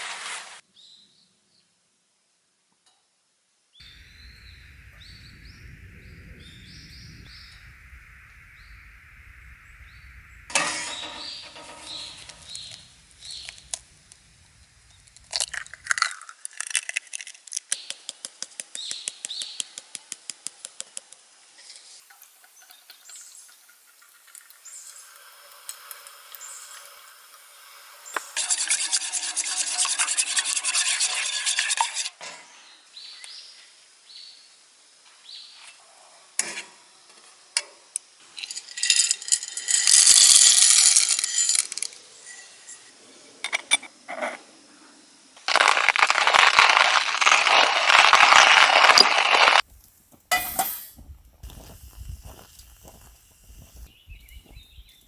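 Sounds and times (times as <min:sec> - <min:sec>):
birds chirping: 0:03.8 - 0:15.9, 0:22.0 - 0:28.4, 0:49.6 - 0:55.0
loud dense hiss: 0:03.8 - 0:16.0, 0:22.0 - 0:28.4, 0:49.6 - 0:55.0
steady hiss and low rumble: 0:03.8 - 0:16.0, 0:49.6 - 0:55.0
crackling: 0:03.8 - 0:16.1, 0:22.0 - 0:28.5, 0:45.6 - 0:55.0.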